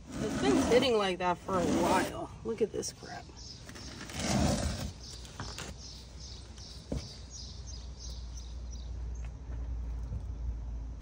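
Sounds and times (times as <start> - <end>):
low rumble of wind or traffic: 0.0 - 11.0
small bird chirping: 3.0 - 9.3.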